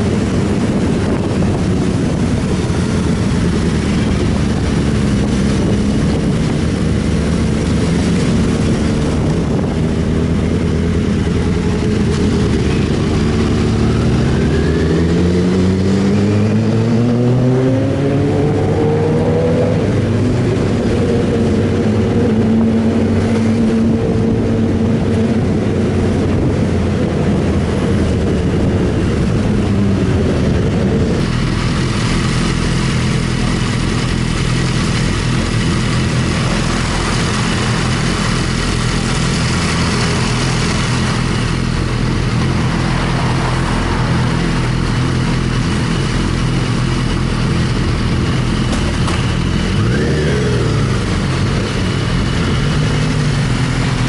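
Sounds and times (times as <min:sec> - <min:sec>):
wind rushing: 0:00.0 - 0:33.1
motorcycle engine running: 0:00.0 - 0:54.0.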